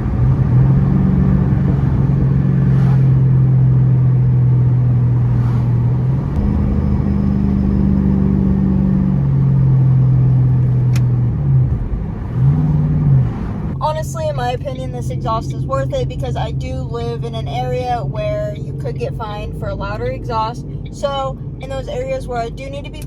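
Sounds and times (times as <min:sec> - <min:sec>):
car exhaust drone while driving: 0:00.0 - 0:23.0.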